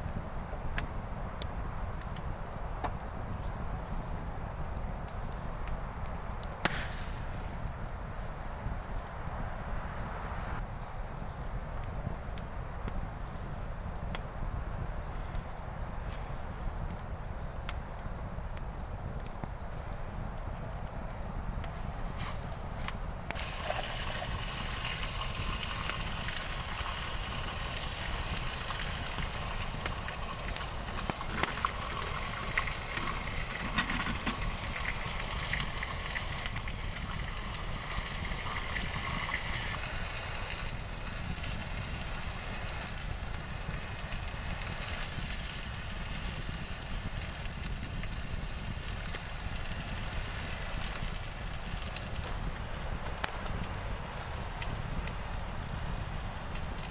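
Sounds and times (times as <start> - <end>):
wind rumbling on microphone: 0.0 - 56.9
small clicks and crackles: 25.1 - 56.9.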